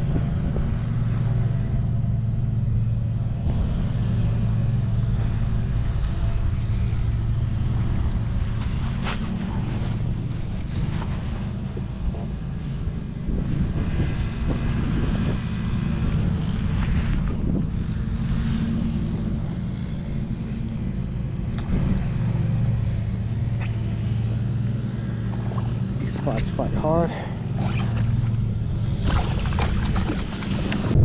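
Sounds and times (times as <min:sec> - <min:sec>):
engine drone: 0:00.0 - 0:31.0
wind on microphone: 0:00.0 - 0:31.0.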